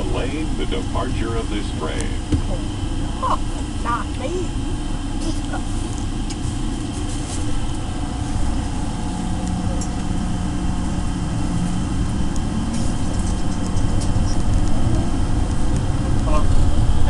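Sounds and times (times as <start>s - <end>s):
people-mover train rumbling: 0.0s - 17.0s
steady low hum: 0.0s - 17.0s.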